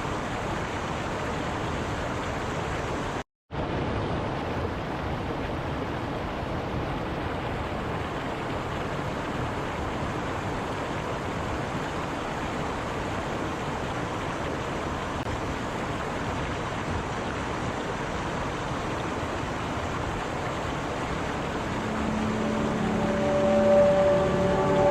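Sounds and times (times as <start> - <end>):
stream running water: 0.0 - 24.9.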